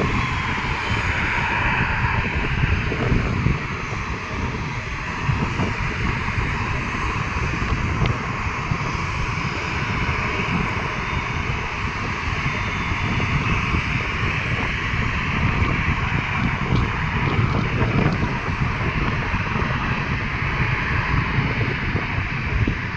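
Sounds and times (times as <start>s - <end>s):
airliner engine noise: 0.0s - 22.9s
wind buffeting microphone: 0.0s - 22.9s.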